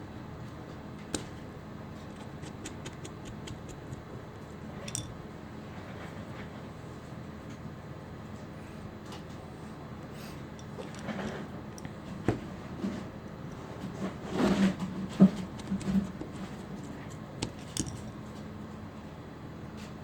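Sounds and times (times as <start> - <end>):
steady low hum: 0.0 - 20.0
handling clicks and knocks: 4.8 - 5.2, 10.5 - 12.5, 14.8 - 18.5.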